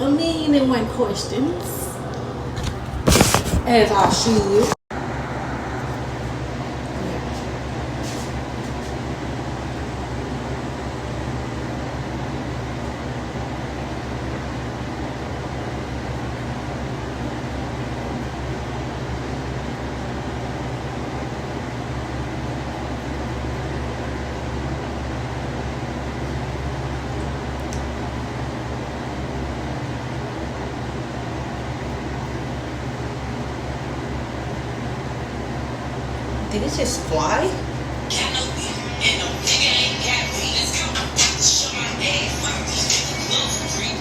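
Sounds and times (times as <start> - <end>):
motor-driven fan whirring: 0.0 - 44.0
air blower whirring: 2.2 - 4.8.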